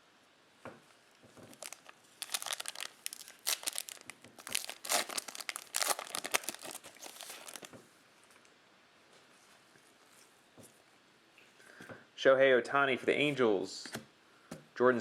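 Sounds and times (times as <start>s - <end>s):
foil wrapper tearing and crinkling: 1.5s - 7.7s.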